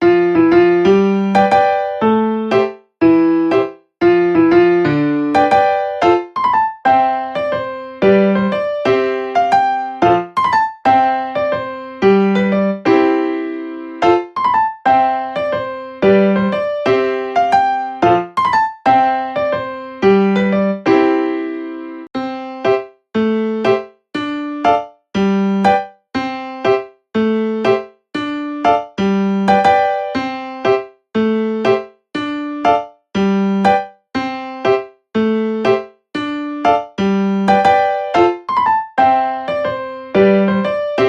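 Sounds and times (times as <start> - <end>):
piano-like keyboard music: 0.0 - 41.0.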